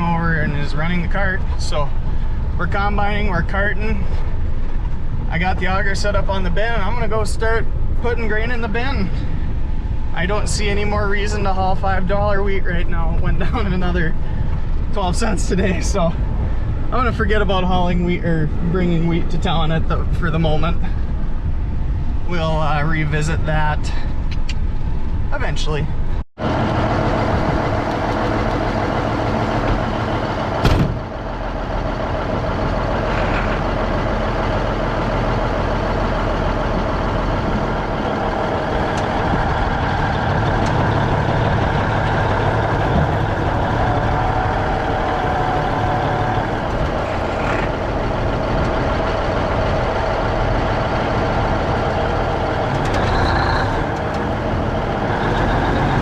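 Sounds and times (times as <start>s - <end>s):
heavy vehicle engine running: 0.0s - 22.4s, 23.6s - 56.0s.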